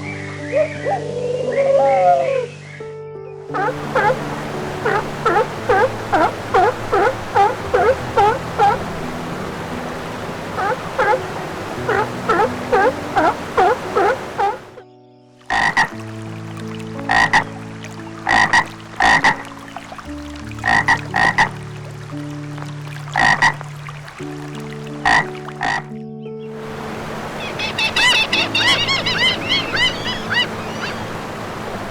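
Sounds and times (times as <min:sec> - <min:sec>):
croak-like animal calls: 0:03.5 - 0:08.9, 0:10.6 - 0:14.8, 0:15.5 - 0:16.0, 0:17.0 - 0:17.6, 0:18.2 - 0:19.5, 0:20.5 - 0:21.6, 0:23.1 - 0:23.6, 0:25.0 - 0:25.9, 0:27.4 - 0:31.1
low held notes: 0:03.5 - 0:14.8
rapid short animal calls: 0:03.6 - 0:08.8, 0:10.6 - 0:11.2, 0:11.8 - 0:14.8.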